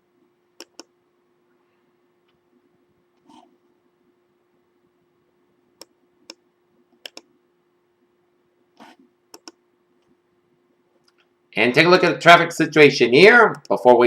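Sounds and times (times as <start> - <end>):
steady low hum: 0.0 - 14.0
faint computer clicks: 0.6 - 0.9, 7.0 - 7.3, 9.3 - 9.6.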